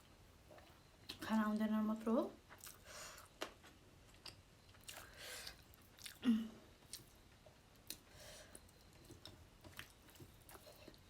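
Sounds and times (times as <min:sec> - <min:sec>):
person chewing food: 0:02.4 - 0:11.0.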